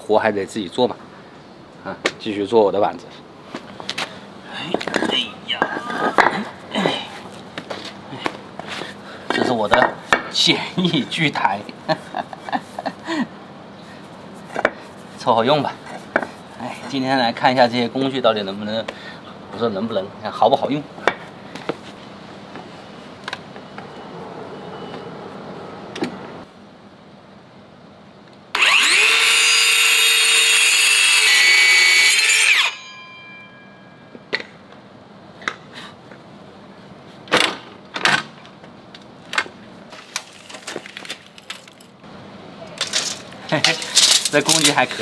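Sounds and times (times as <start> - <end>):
circular saw cutting wood: 28.5 - 32.9.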